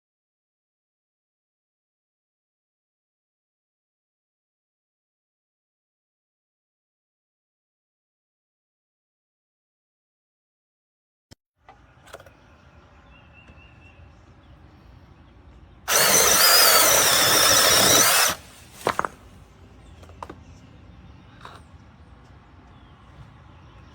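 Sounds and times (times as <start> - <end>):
mini chainsaw whirring: 15.9 - 19.1.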